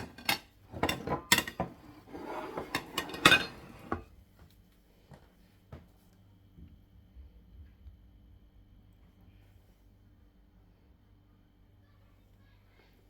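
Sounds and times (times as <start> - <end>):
bowls and utensils clinking: 0.0 - 4.1.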